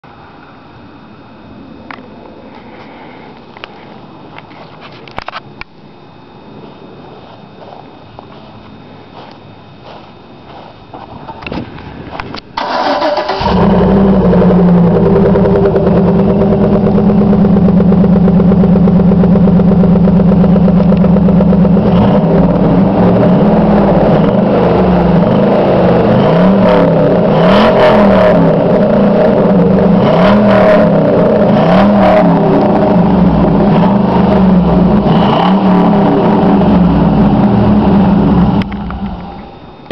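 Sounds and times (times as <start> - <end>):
engine idling: 7.6 - 39.9
starter motor cranking: 12.6 - 14.1
engine revving: 12.6 - 39.6.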